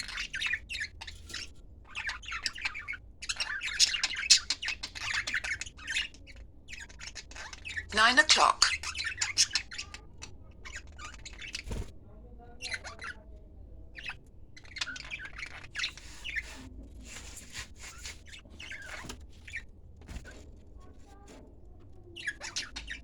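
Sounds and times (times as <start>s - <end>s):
pet bird chirping and squawking: 0.0s - 11.8s, 13.9s - 16.6s, 17.8s - 19.7s, 22.0s - 23.0s.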